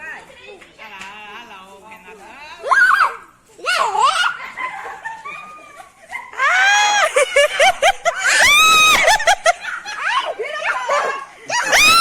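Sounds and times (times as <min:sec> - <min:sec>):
people shrieking and screaming: 0:02.7 - 0:12.0
people laughing: 0:04.3 - 0:12.0.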